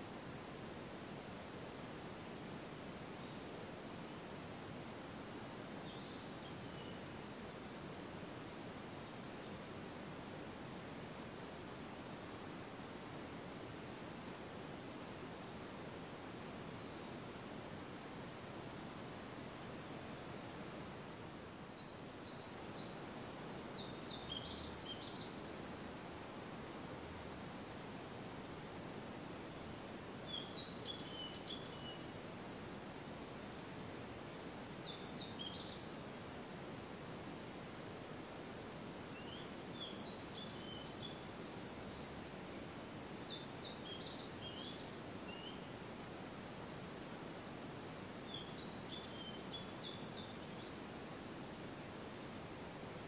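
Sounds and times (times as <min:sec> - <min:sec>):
low background hiss: 0:00.0 - 0:53.0
songbirds singing: 0:19.9 - 0:26.1, 0:30.2 - 0:32.8, 0:34.8 - 0:35.9, 0:39.1 - 0:42.7, 0:43.3 - 0:46.4, 0:48.2 - 0:51.2.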